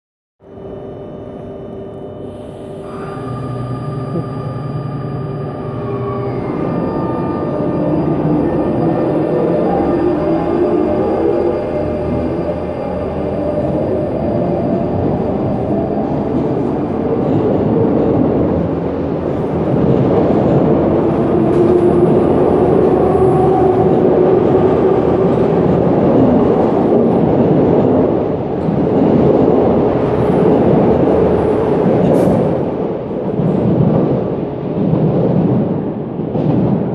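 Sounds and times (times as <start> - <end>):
train motor hum: 0.5 - 27.4
train wheels rumbling on rails: 2.9 - 36.9.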